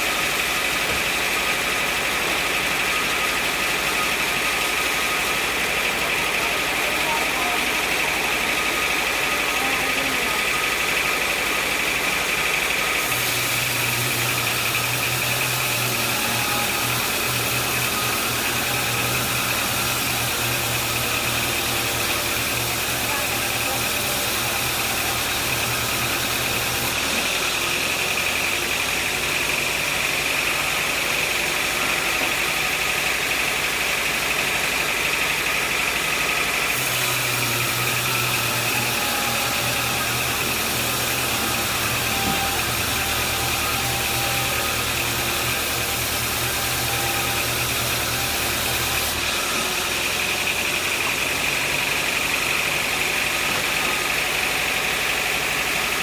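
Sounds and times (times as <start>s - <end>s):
engine drone: 0.0s - 56.0s.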